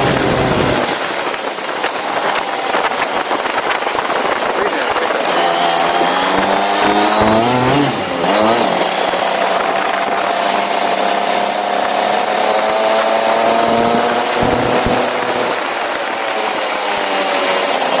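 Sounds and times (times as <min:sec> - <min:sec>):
go-kart engine revving: 0:00.0 - 0:18.0.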